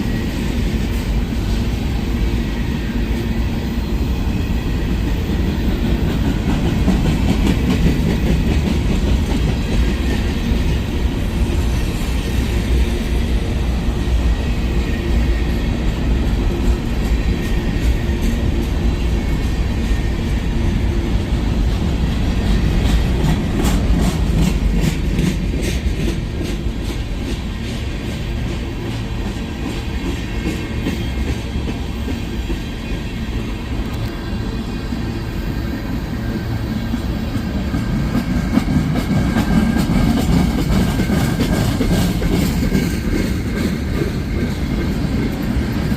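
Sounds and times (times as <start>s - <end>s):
freight train rumbling past: 0.0s - 45.9s
wheels clacking over rail joints: 4.8s - 11.8s, 16.1s - 34.6s, 35.8s - 45.9s.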